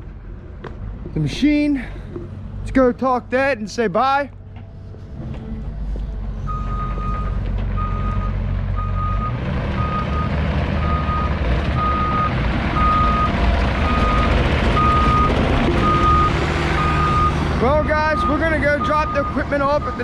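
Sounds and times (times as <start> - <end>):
heavy equipment engine running: 4.4 - 20.0
backup alarm beeping: 10.9 - 20.0.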